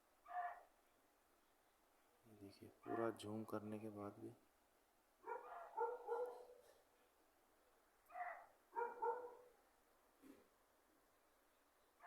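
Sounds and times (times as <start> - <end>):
animal barking: 0.3 - 0.7, 2.8 - 3.2, 5.2 - 6.7, 8.1 - 9.5.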